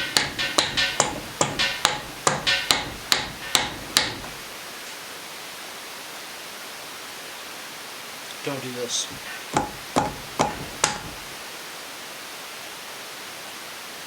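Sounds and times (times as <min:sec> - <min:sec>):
mallet knocking metal cylinder: 0:00.0 - 0:04.4, 0:09.1 - 0:11.4.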